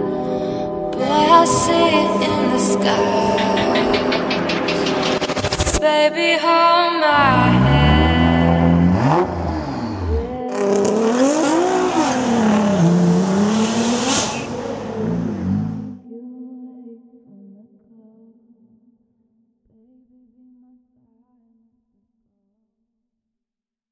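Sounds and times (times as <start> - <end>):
car engine revving hard: 7.2 - 16.0.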